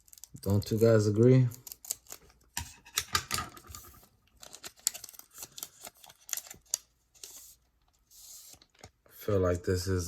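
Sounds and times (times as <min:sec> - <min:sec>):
foil wrapper crinkling: 0:04.3 - 0:07.4.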